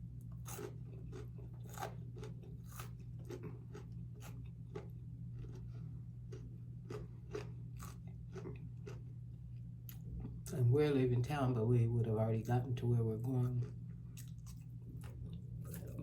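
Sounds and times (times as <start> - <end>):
steady low hum: 0.0 - 16.0
person chewing crunchy food: 0.2 - 9.2, 13.4 - 16.0.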